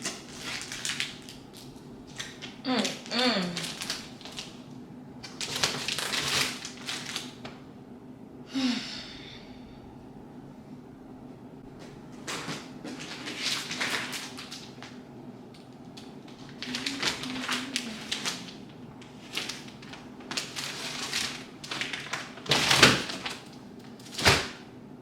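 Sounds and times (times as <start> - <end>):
rustling packaging: 0.0 - 4.6, 5.2 - 7.5, 12.2 - 15.0, 15.6 - 24.6.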